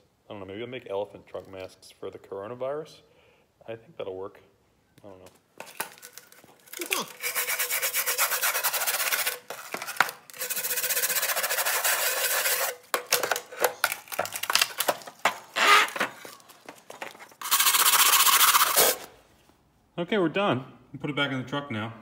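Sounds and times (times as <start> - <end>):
short scrapes: 6.0 - 12.9, 15.5 - 19.4
rapid scrubbing on metal unit: 7.1 - 12.8.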